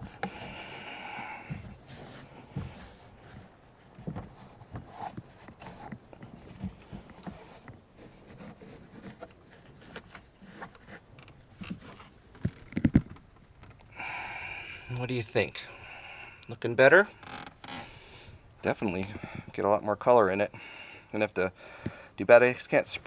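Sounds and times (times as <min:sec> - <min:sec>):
light rubbing and tapping: 0:00.0 - 0:13.9.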